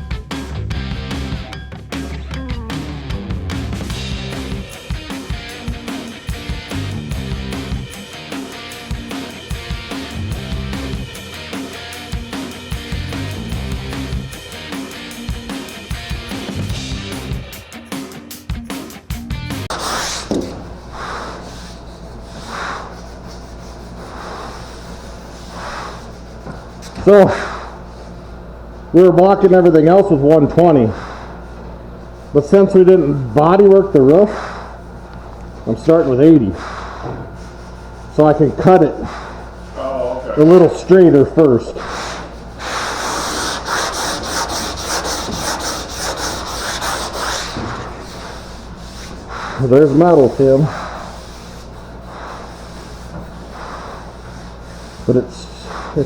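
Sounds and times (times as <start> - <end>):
steady low hum: 2.3 - 17.5, 19.7 - 56.0
sandpaper rubbing on metal: 19.7 - 28.2, 35.7 - 56.0.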